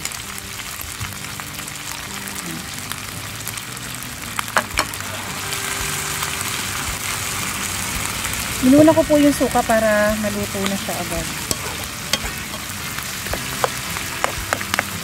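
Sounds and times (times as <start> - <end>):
food sizzling in hot oil: 0.0 - 15.0
plastic spoon stirring: 13.3 - 15.0.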